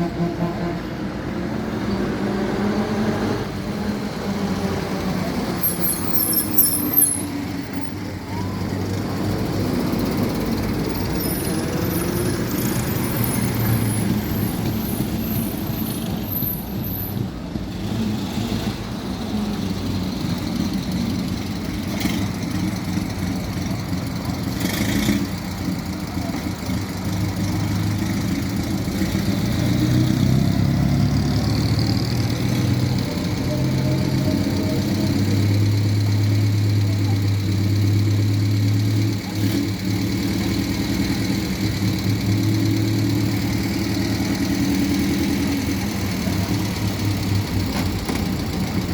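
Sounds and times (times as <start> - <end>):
street traffic: 0.0 - 48.9.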